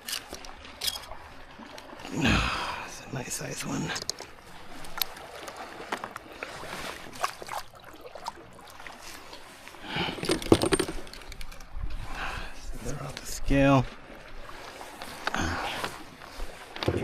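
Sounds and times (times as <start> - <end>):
fishing gear clicking and rattling: 0.0 - 1.9, 3.3 - 6.3, 9.9 - 12.0.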